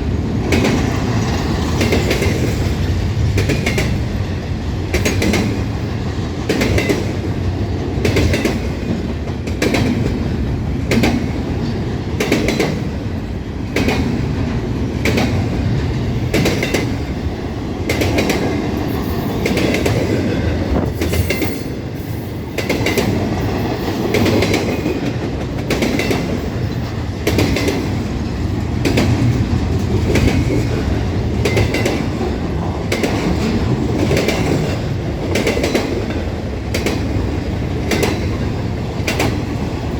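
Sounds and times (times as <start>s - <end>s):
train cars rumbling past: 0.0s - 39.9s
wheels clicking over rail joints: 22.5s - 39.9s.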